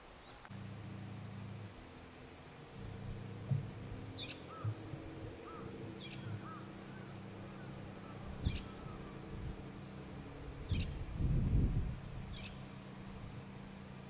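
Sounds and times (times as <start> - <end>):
low steady hum: 0.0 - 14.0
low knocks: 2.7 - 8.7
soft bird chirps: 4.0 - 9.3, 12.3 - 12.8.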